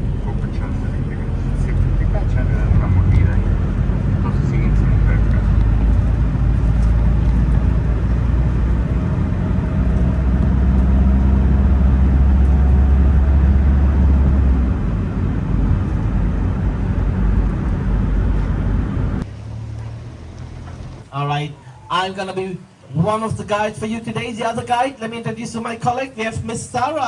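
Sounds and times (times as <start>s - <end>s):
motor vehicle rumbling: 0.0s - 21.8s.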